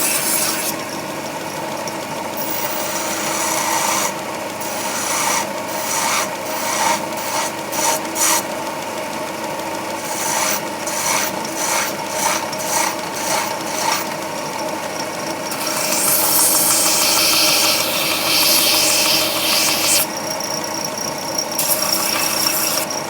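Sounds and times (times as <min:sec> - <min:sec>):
file rasping on metal: 0:00.0 - 0:00.9, 0:02.4 - 0:08.5, 0:10.0 - 0:14.2, 0:15.4 - 0:20.1, 0:21.6 - 0:23.0.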